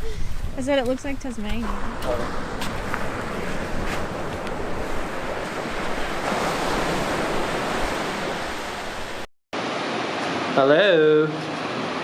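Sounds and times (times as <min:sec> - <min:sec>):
wind buffeting microphone: 0:00.0 - 0:09.3
ocean surf washing: 0:00.3 - 0:12.0.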